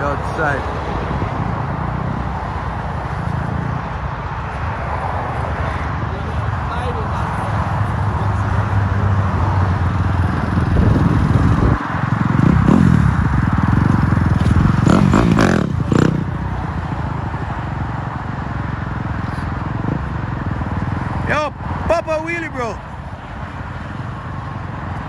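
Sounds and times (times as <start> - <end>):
wind noise: 6.6 - 17.5, 19.4 - 21.9
dirt bike engine revving: 7.3 - 21.4.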